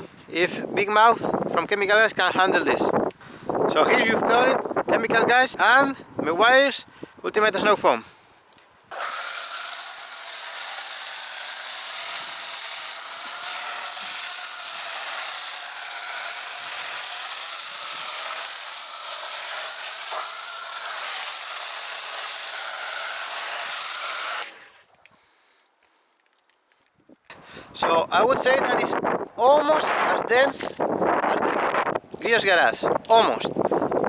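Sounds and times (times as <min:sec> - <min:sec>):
foam cannon spraying hiss: 0:08.9 - 0:24.8.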